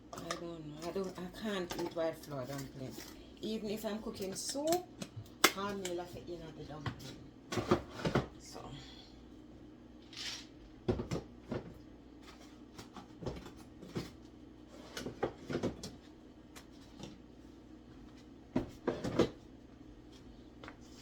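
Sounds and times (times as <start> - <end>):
kitchen items clattering: 0.1 - 3.2, 6.9 - 8.4.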